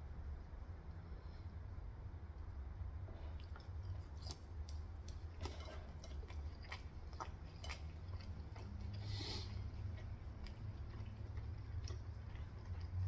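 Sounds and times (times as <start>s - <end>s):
crunchy chewing: 3.2s - 13.0s.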